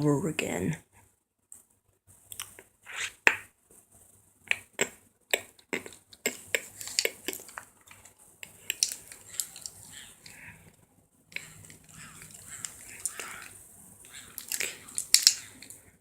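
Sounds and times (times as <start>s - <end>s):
sharp clicks of small hard objects: 5.3s - 10.4s, 14.1s - 15.8s.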